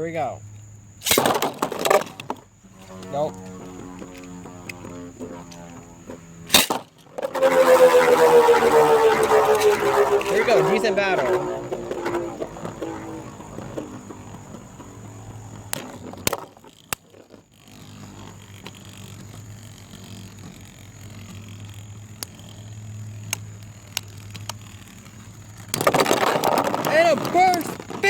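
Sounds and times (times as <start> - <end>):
spinning tops clashing clacks: 1.0 - 2.4, 6.5 - 8.0
spinning tops whirring: 1.0 - 28.0.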